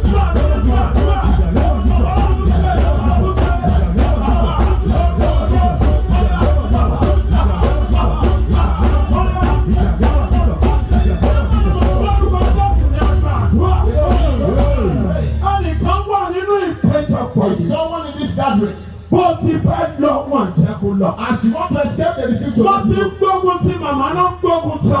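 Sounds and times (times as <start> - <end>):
driving drum beat: 0.0 - 16.0
loud band music: 0.0 - 17.2
heavy bass: 0.0 - 17.6.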